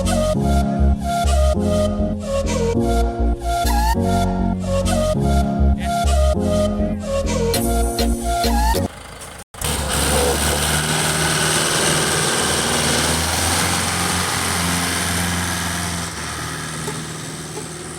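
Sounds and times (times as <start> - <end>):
music: 0.0 - 8.9
tractor diesel engine running: 6.5 - 17.9.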